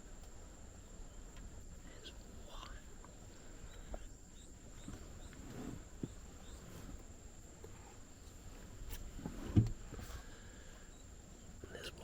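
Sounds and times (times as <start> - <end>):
insects whining: 0.0 - 12.0
low thump: 9.4 - 9.8.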